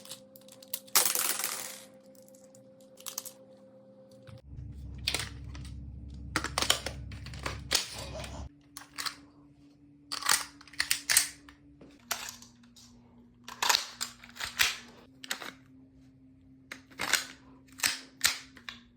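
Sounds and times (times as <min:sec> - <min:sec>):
low hum: 0:02.1 - 0:08.5.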